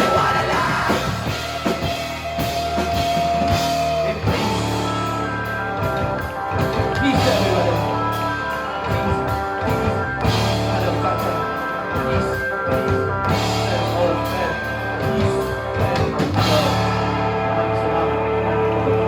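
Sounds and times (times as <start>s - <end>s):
drum kit steady beat: 0.0s - 17.3s
guitar chords ringing: 0.0s - 19.0s.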